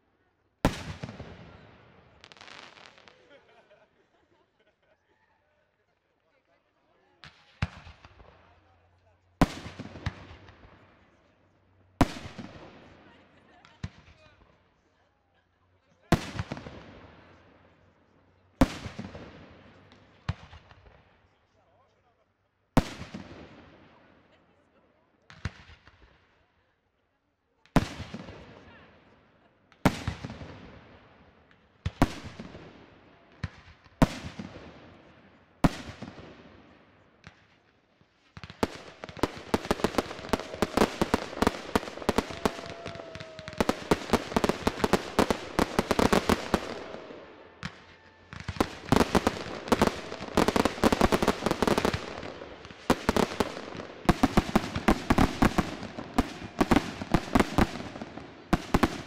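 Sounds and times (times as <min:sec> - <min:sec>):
rapid firework bangs and crackling: 0:00.6 - 0:03.7, 0:07.1 - 0:11.2, 0:11.9 - 0:14.6, 0:16.1 - 0:17.8, 0:18.6 - 0:21.0, 0:22.7 - 0:24.0, 0:25.3 - 0:26.2, 0:27.7 - 0:59.0.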